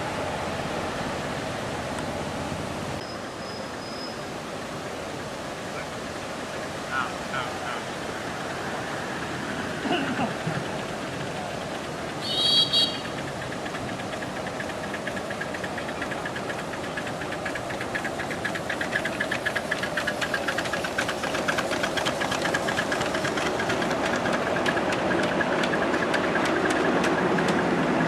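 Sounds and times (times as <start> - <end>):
train wheels clicking: 9.9 - 28.0
train whistle blasts: 12.2 - 13.1.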